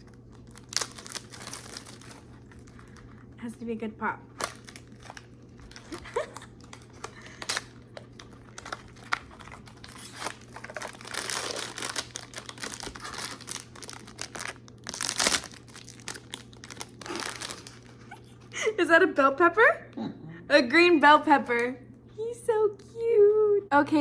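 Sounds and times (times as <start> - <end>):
wrapper crinkling and tearing: 0.0 - 3.3, 4.3 - 18.2.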